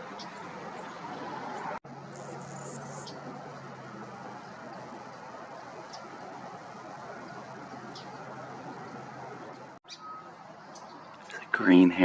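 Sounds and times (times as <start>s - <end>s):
outdoor background hiss: 0.0s - 12.0s
high bird chirps: 2.1s - 3.3s, 9.8s - 11.3s.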